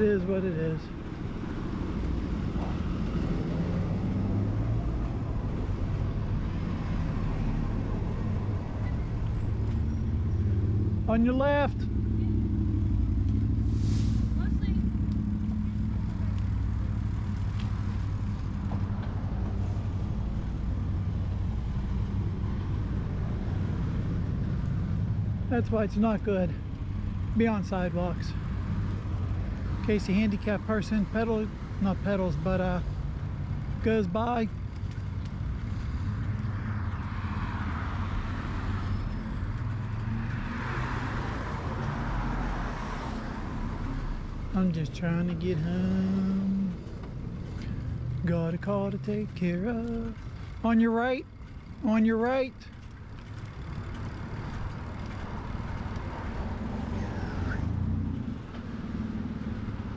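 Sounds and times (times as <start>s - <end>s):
bike tyres rolling on pavement: 14.3s - 29.8s, 33.0s - 44.4s, 46.8s - 59.9s
bike tyre rumble: 51.3s - 51.8s.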